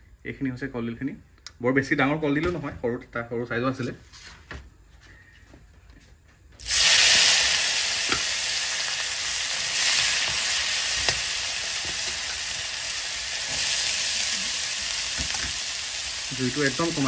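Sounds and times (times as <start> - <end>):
food sizzling in hot oil: 6.6 - 17.0.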